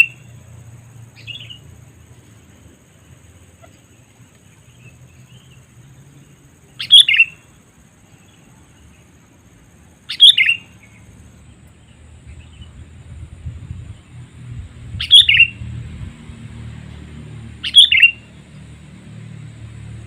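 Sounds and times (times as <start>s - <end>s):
faint bird chirps: 0.0s - 9.4s, 10.0s - 12.8s, 15.0s - 15.6s, 17.6s - 18.3s.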